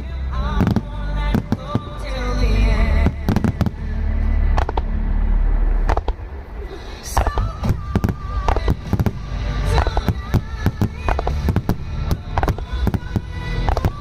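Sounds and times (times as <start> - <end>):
music playing: 0.0 - 14.0
fireworks bangs and crackles: 3.0 - 3.8, 7.0 - 14.0.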